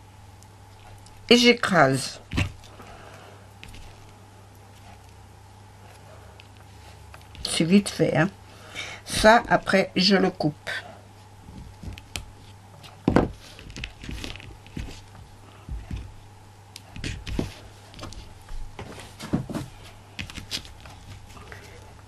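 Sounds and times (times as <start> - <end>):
hands handling craft materials: 2.3 - 5.2, 11.4 - 21.9.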